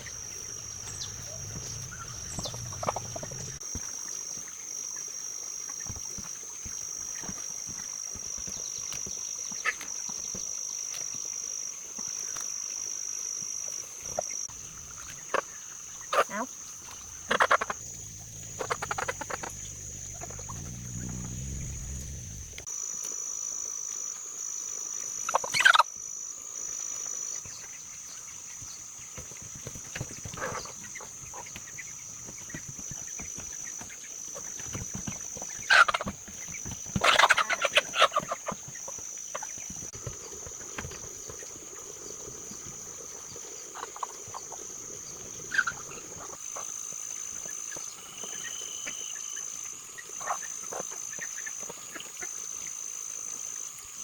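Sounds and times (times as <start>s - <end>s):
poultry calling: 0.0s - 3.6s, 17.1s - 22.6s, 35.6s - 36.1s, 37.0s - 38.6s
steady high-pitched whine: 0.0s - 3.9s.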